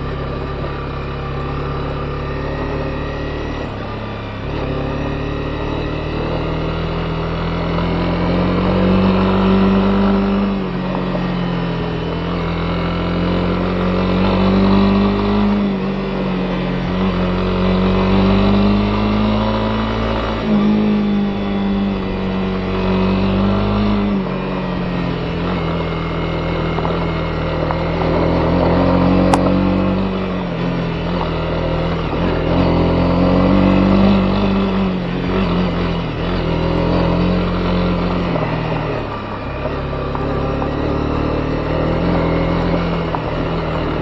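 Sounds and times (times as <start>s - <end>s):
motorcycle engine running: 0.0s - 44.0s
sharp click: 29.3s - 29.6s.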